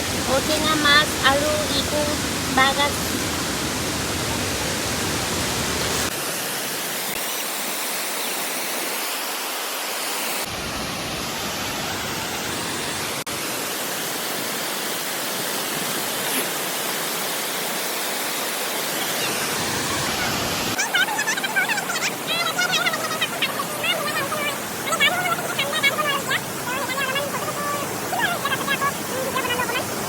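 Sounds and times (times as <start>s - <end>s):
waterfall and stream rushing: 0.0s - 30.0s.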